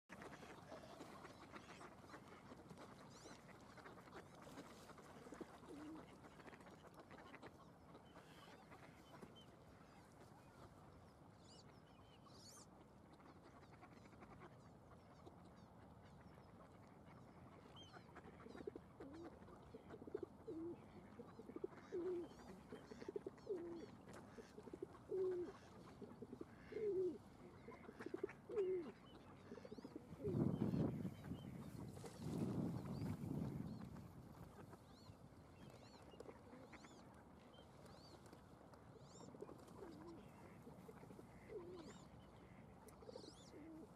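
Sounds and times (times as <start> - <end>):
faint outdoor background: 0.0 - 43.9
bird low falling calls: 24.6 - 37.0.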